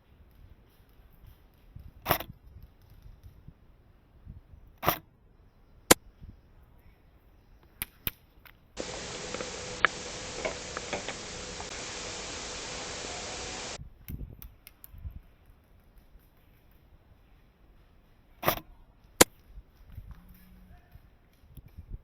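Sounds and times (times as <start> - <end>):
steady hiss: 8.8 - 13.8.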